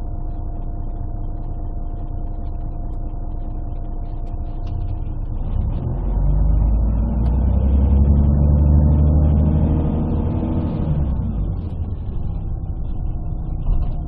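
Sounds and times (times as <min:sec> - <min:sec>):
bus diesel engine under load: 0:04.1 - 0:14.0.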